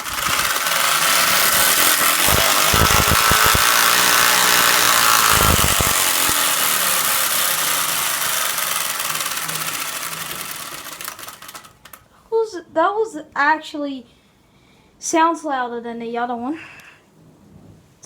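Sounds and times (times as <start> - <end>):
cards flapping in bicycle spokes: 0.0 - 12.0.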